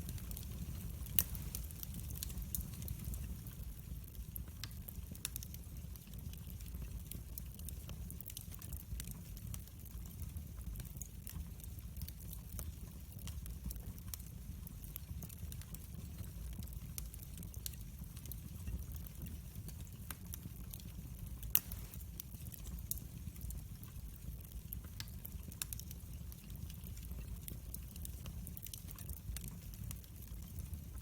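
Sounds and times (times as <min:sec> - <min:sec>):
loud fire snap: 0:00.0 - 0:03.5, 0:21.4 - 0:23.0
fire crackles and pops: 0:00.0 - 0:31.0
low rumble of flames: 0:00.0 - 0:31.0.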